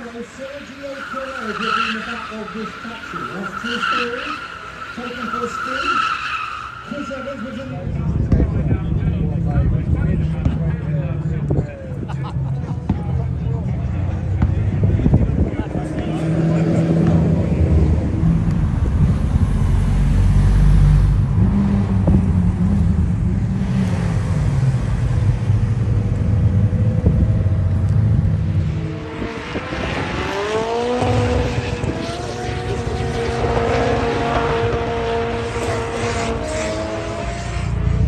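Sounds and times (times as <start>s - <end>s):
car engines revving: 0.0s - 38.0s
deep engine rumble: 7.8s - 29.2s.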